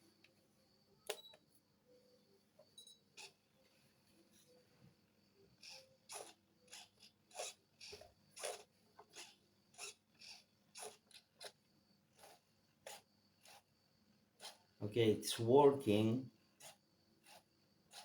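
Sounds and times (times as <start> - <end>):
servos buzzing: 5.6 - 11.6.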